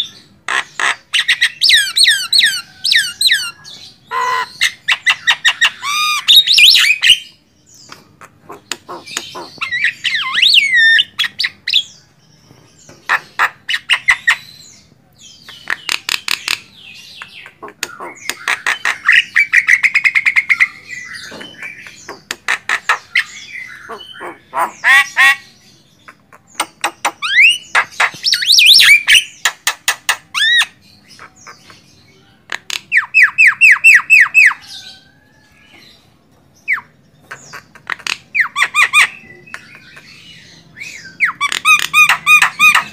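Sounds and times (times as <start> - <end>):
myna calling: 8.2 - 11.8, 21.7 - 25.5.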